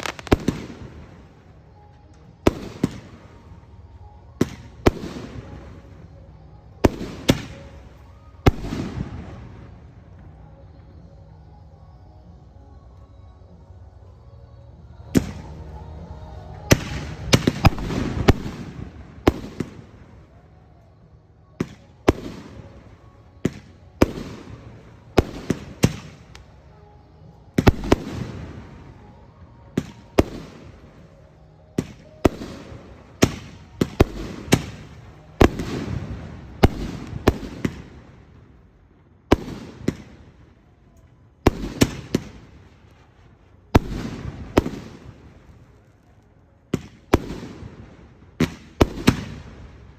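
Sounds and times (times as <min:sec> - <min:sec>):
fireworks bangs with rumbling echo: 0:00.0 - 0:01.4, 0:02.4 - 0:03.5, 0:04.3 - 0:06.1, 0:06.8 - 0:07.8, 0:16.5 - 0:20.1, 0:21.6 - 0:26.5, 0:27.5 - 0:29.1, 0:31.8 - 0:38.5, 0:39.3 - 0:40.5, 0:41.4 - 0:45.7, 0:46.7 - 0:49.9.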